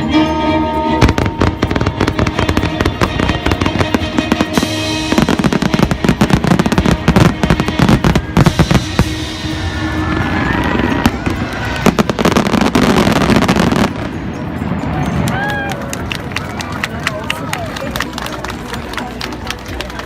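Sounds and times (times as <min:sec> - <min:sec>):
music playing: 0:00.0 - 0:20.0
fireworks bursting and crackling: 0:01.0 - 0:15.3.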